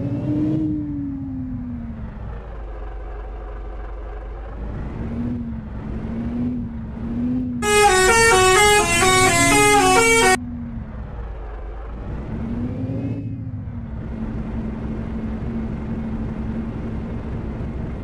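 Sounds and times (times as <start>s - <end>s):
truck engine running: 1.5s - 7.0s, 7.6s - 12.5s, 13.6s - 18.0s
musical horn tune: 7.6s - 10.4s.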